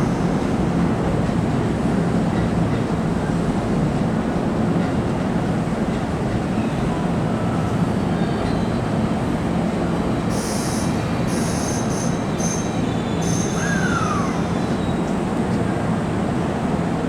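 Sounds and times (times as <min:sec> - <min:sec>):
electric train rumbling: 0:00.0 - 0:17.0
train wheels squealing: 0:06.5 - 0:09.3, 0:10.1 - 0:15.2.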